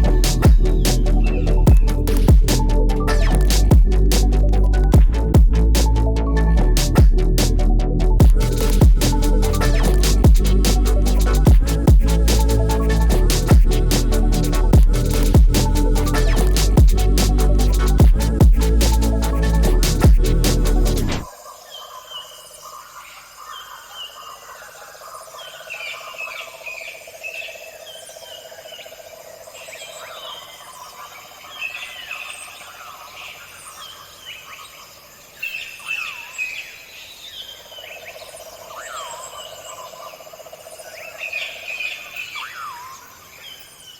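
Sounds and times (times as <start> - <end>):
electronic music: 0.0 - 21.3
steady drone: 0.0 - 21.3.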